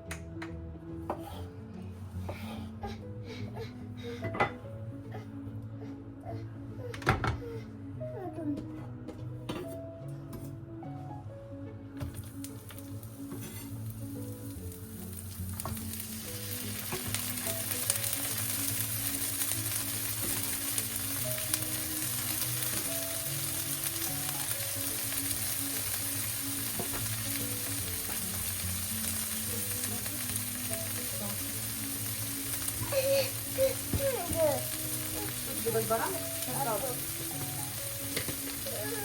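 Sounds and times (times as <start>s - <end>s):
food sizzling in a pan: 12.1s - 39.0s.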